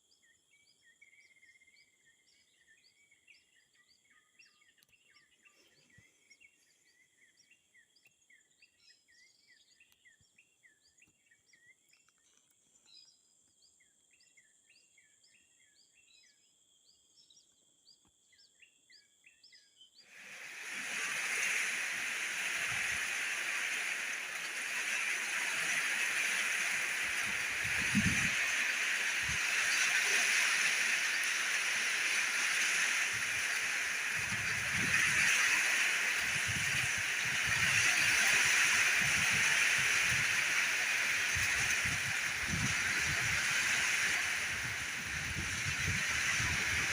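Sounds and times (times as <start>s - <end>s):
birds chirping: 18.4s - 46.9s
heavy rain hissing: 20.1s - 46.9s
high insect drone: 20.2s - 46.9s.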